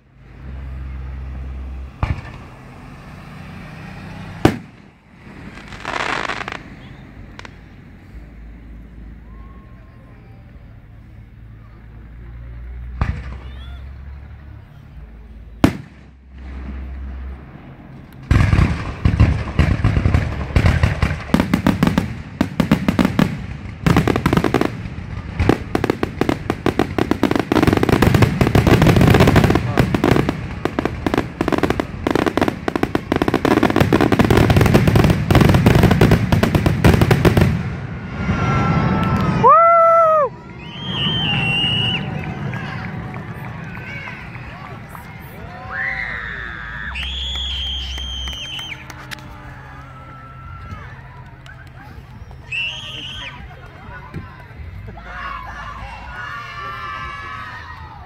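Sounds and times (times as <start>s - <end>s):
fireworks crackling: 0.0s - 58.0s
fireworks bursting: 0.2s - 11.5s, 12.1s - 45.4s, 46.6s - 50.0s
firework shells bursting: 4.4s - 7.8s
low rumble: 37.6s - 45.7s.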